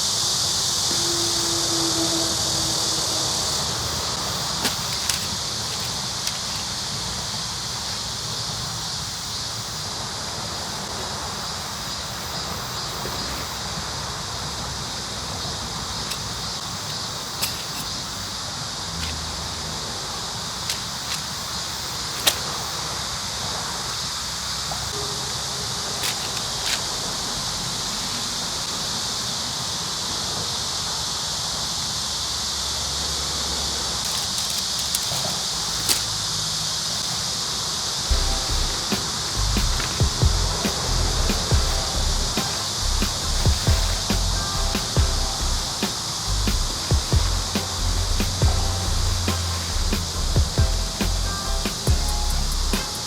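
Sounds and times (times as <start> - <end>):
insect buzzing: 0.0 - 29.8, 34.0 - 53.0
tent pitching clicks and knocks: 4.1 - 6.9, 16.0 - 18.2, 18.9 - 19.3, 20.6 - 22.8, 26.0 - 27.0, 34.0 - 36.2, 38.1 - 53.0.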